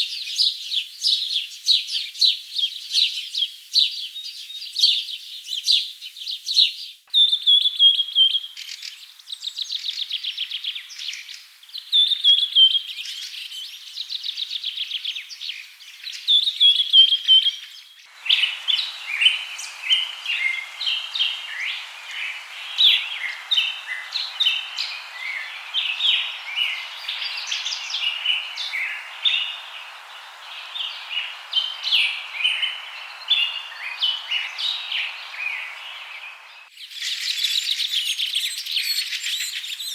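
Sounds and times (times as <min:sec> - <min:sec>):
birds singing and chirping: 0:15.0 - 0:39.9
steady background hiss: 0:18.1 - 0:37.4.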